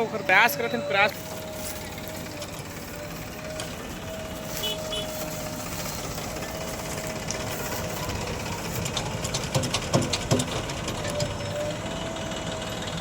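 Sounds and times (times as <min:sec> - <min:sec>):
heavy diesel machinery running: 0:00.0 - 0:13.0
sharp knocks and clanks: 0:08.7 - 0:11.6.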